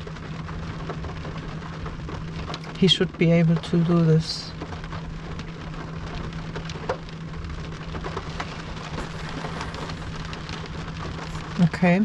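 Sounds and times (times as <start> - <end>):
rain pattering on car roof: 0.0 - 12.0
low hum: 7.7 - 11.6.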